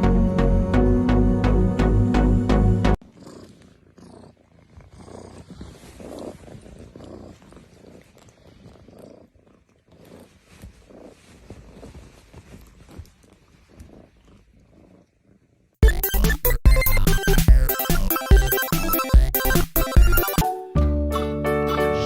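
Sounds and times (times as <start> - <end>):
cat purring: 3.0 - 15.8.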